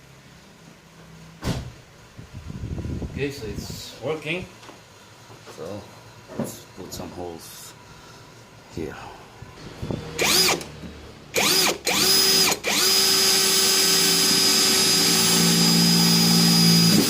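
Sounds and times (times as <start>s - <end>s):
electric drill drilling into metal: 10.2s - 10.7s, 11.3s - 17.0s.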